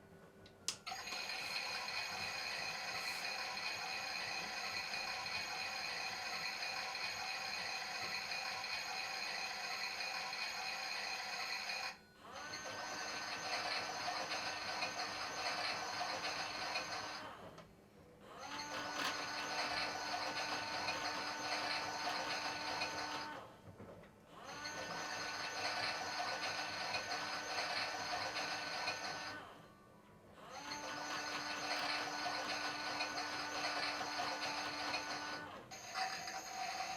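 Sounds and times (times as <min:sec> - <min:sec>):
toy washing machine motor whirring: 0:00.7 - 0:17.6, 0:18.3 - 0:23.5, 0:24.3 - 0:29.6, 0:30.4 - 0:36.9.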